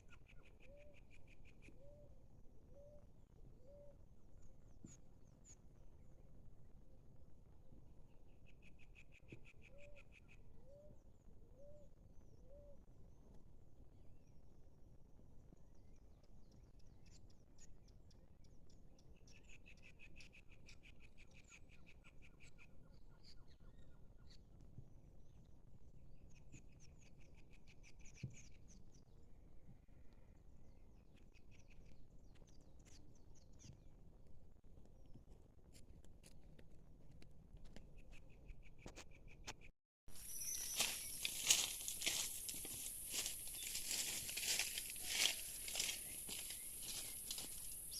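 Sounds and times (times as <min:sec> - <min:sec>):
thin high chirps: 0:40.2 - 0:47.9.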